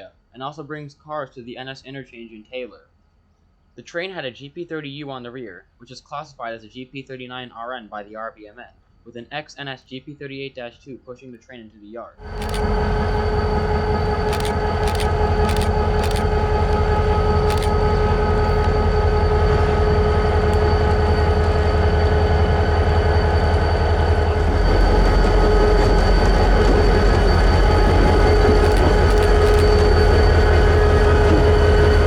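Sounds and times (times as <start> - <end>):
sharp clicks: 12.2 - 21.3, 28.2 - 30.0
steady whine: 12.2 - 32.0
train rumble: 12.2 - 32.0.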